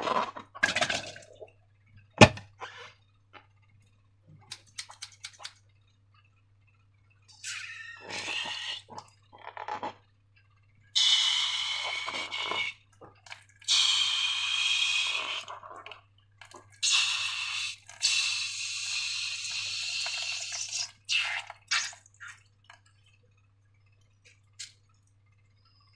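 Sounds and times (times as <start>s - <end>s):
wet hissing bursts: 13.7s - 15.5s, 16.8s - 21.9s.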